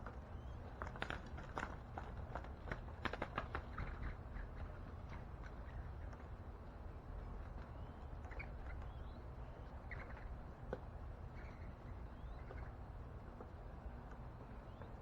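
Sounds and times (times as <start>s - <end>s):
faint bird chirps: 7.7s - 10.4s, 11.3s - 12.8s, 14.6s - 15.0s.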